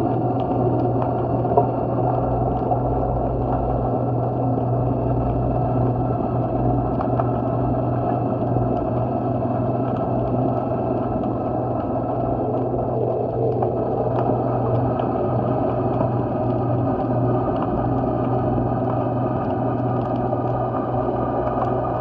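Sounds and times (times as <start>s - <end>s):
low mechanical drone: 0.0s - 22.0s
wash of noise: 0.0s - 22.0s.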